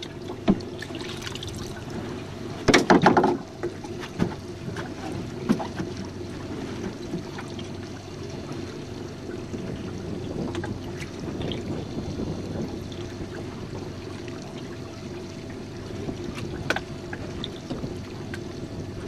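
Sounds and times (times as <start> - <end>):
boat low hum: 0.0 - 19.0
knocks on boat: 0.4 - 0.7, 2.0 - 6.1.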